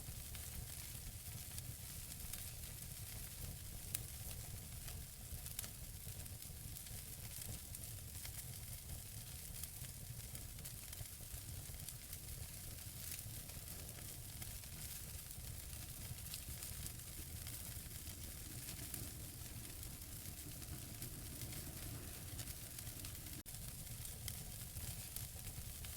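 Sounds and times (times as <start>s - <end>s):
wood fire crackling: 0.0s - 25.9s.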